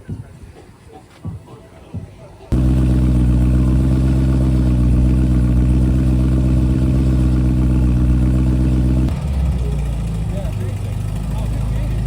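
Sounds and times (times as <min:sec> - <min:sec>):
car engine idling: 0:02.5 - 0:12.0.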